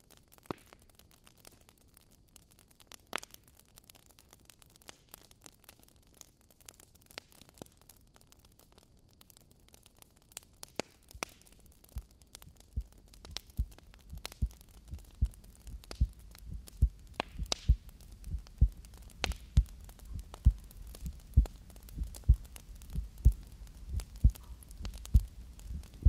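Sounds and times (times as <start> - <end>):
heartbeat thumps: 12.8 - 26.0.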